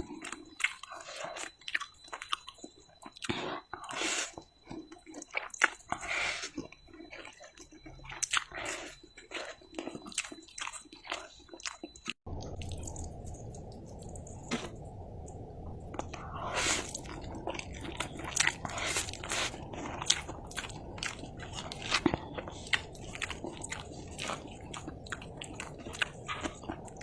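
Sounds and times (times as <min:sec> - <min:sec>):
chewing noodles with mouth clicks: 0:00.0 - 0:27.0
steady low rumble: 0:12.3 - 0:27.0.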